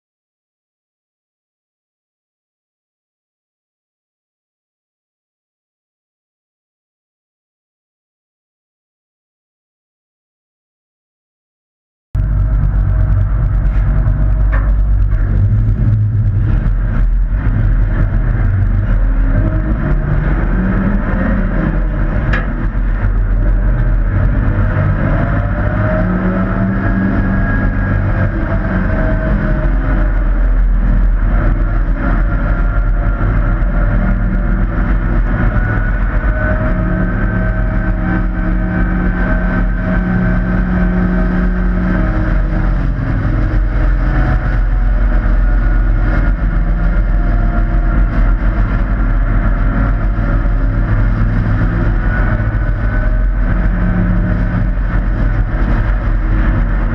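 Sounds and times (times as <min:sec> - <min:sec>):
racing truck engines: 0:12.2 - 0:56.9.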